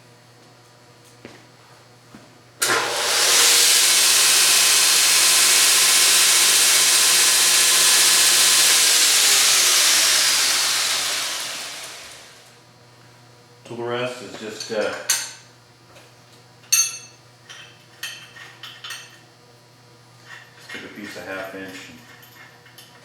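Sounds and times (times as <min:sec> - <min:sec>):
belt grinder running: 0:02.6 - 0:12.6.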